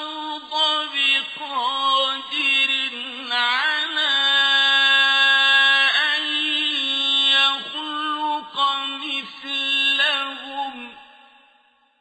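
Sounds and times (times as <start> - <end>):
man chanting melodically: 0.0 - 11.4.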